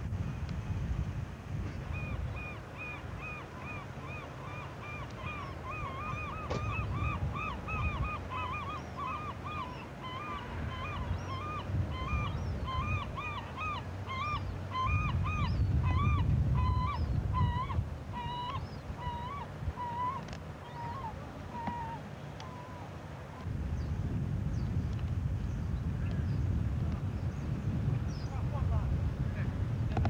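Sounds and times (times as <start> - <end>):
bird calling: 1.8 - 22.9.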